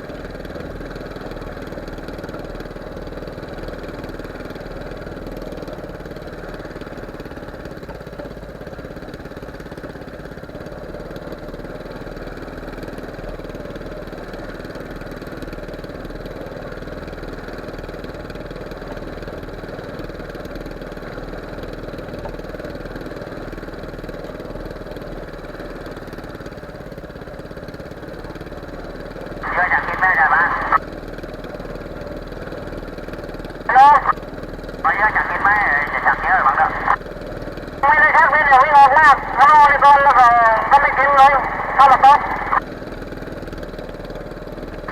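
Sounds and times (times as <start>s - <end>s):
boat engine running: 18.6s - 44.9s.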